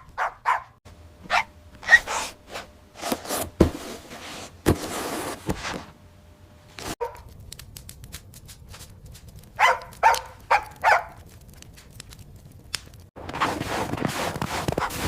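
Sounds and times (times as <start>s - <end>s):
dog barking: 0.0s - 2.0s, 7.0s - 7.3s, 9.6s - 11.2s.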